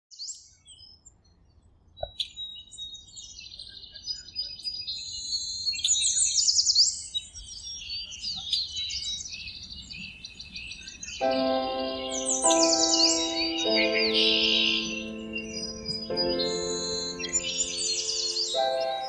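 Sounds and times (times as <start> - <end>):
birds chirping and singing: 7.3 - 19.0.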